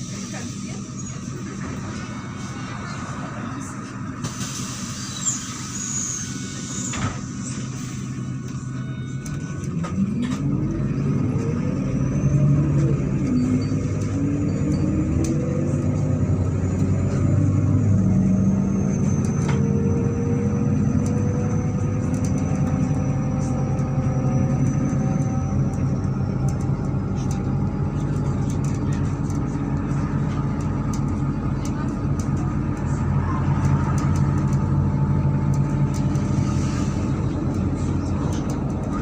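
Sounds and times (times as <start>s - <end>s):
bus engine accelerating: 0.0s - 39.0s.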